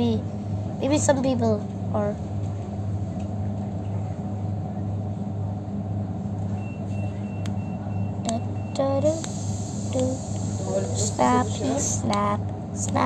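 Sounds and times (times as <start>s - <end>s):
train rumbling: 0.0s - 13.0s
faint high beep: 6.6s - 8.9s.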